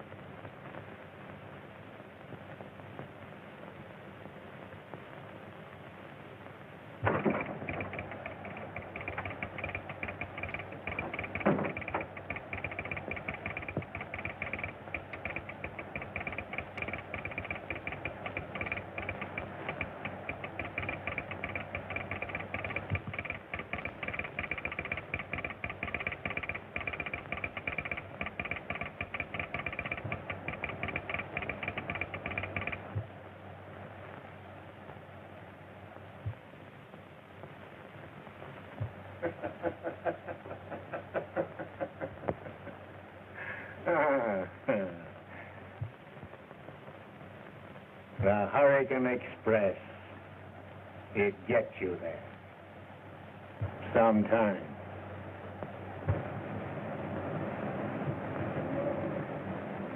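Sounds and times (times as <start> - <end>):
rapid mechanical clatter: 7.1 - 33.1.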